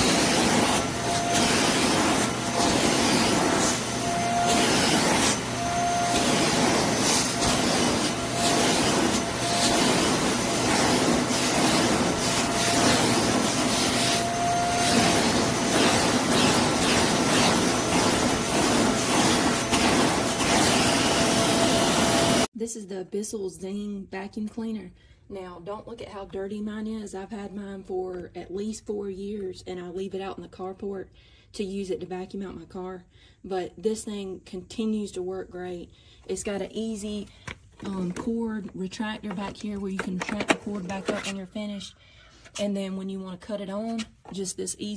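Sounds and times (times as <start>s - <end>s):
vacuum cleaner running: 0.0s - 22.5s.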